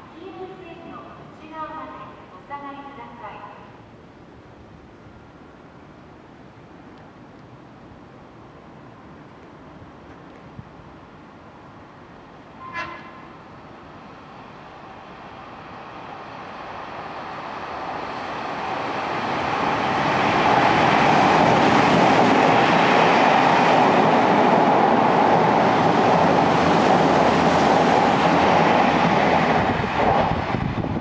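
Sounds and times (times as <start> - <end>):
electric train passing: 10.8 - 31.0.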